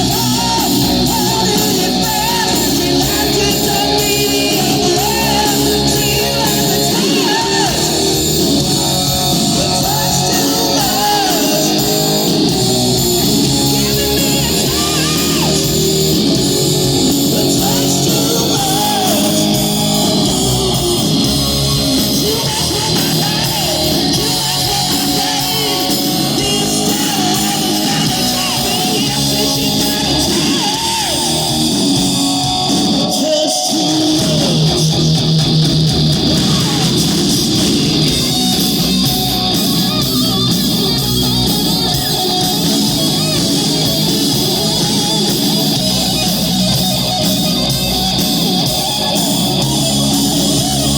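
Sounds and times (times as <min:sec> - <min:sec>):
person singing: 0:00.0 - 0:35.0, 0:36.2 - 0:40.8
electric guitar: 0:00.0 - 0:50.9
live rock band playing: 0:00.0 - 0:50.9.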